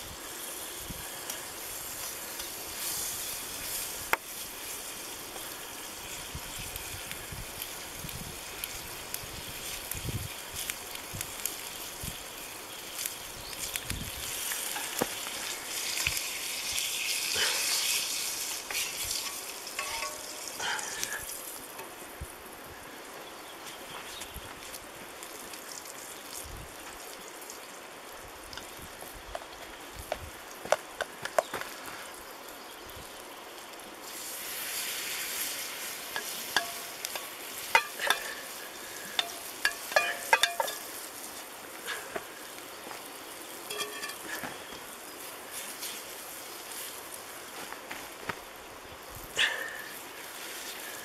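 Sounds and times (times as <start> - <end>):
fat sizzling in frying pan: 0.0 - 51.0
metallic clinks of stirring: 19.2 - 21.0, 36.2 - 38.4, 39.1 - 41.0, 43.7 - 44.4.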